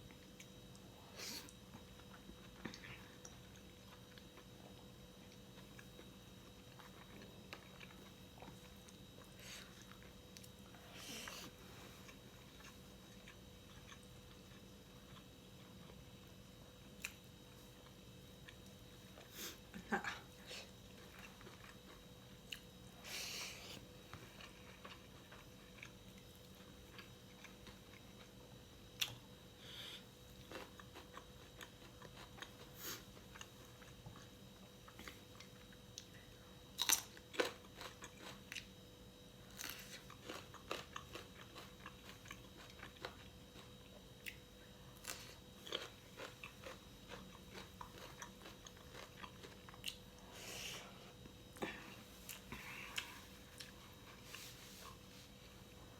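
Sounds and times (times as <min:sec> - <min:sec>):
wet chewing: 0:45.0 - 0:50.0.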